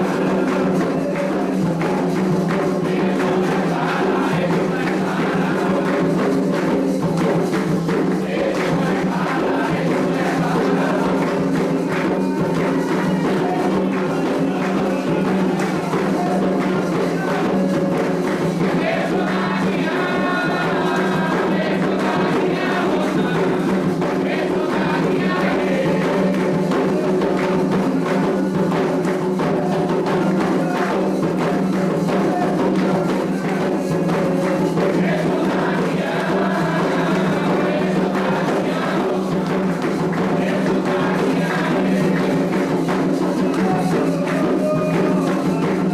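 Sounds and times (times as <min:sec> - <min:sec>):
group singing: 0:00.0 - 0:45.9
hand drums beating: 0:00.0 - 0:45.9.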